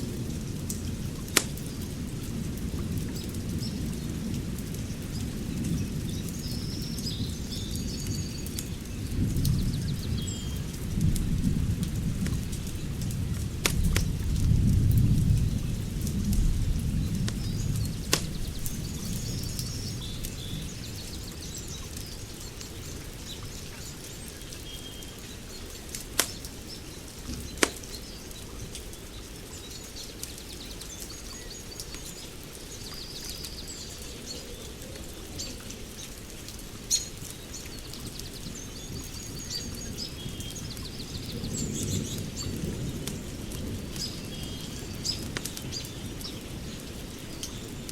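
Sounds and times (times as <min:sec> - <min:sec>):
birds chirping: 0:15.3 - 0:36.2, 0:36.8 - 0:47.9
sharp pops: 0:18.0 - 0:18.5, 0:26.2 - 0:26.5, 0:27.3 - 0:27.9.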